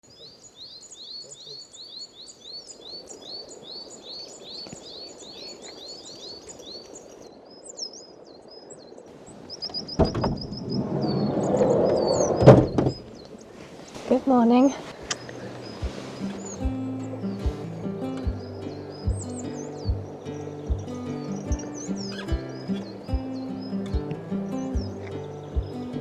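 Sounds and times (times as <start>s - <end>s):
small bird singing: 0.0s - 13.5s, 14.6s - 26.0s
sliding door rumbling open: 10.0s - 13.1s.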